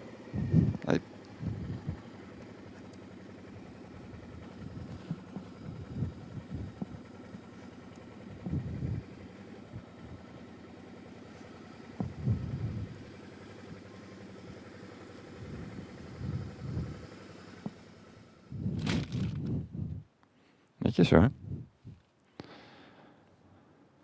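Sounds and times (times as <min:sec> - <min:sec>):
motorcycle engine idling: 0:00.0 - 0:20.0
low thuds: 0:12.0 - 0:12.9.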